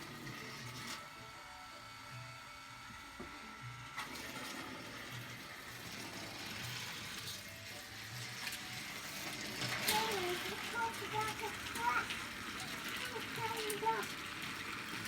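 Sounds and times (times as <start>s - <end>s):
toy train whirring: 0.0s - 15.0s
toy train click: 5.1s - 15.0s.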